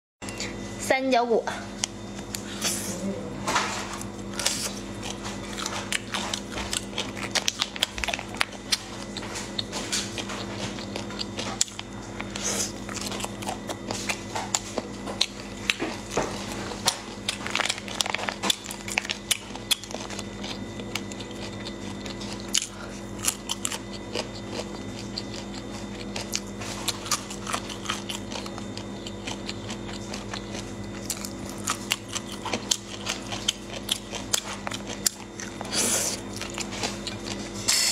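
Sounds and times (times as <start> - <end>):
crunching cartilage: 4.0 - 37.6.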